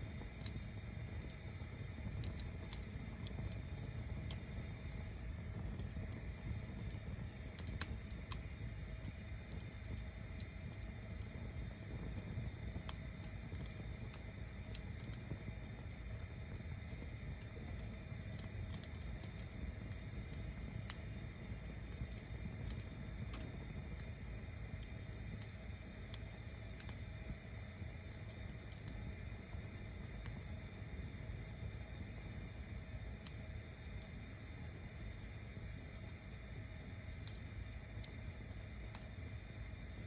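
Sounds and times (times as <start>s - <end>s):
bonfire flames rumbling: 0.0s - 40.0s
fire crackles and pops: 0.0s - 40.0s.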